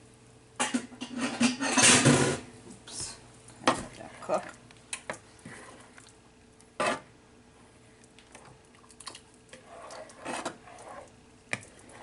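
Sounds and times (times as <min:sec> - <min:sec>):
faint steady hum: 0:00.0 - 0:12.0
soft scrape: 0:09.6 - 0:11.1.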